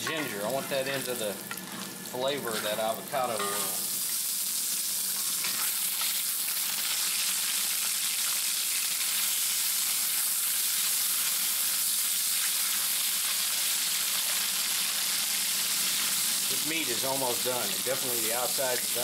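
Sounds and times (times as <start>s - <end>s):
chicken sizzling in a wok: 0.0s - 19.0s
wooden spatula scraping a wok: 1.7s - 3.0s.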